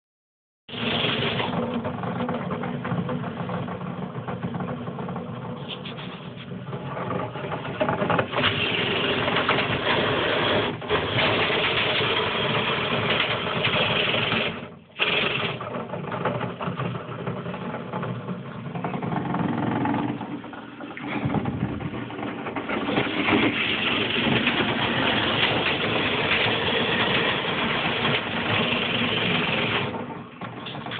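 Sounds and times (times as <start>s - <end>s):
dryer vent cleaning machine running: 0.7s - 30.9s.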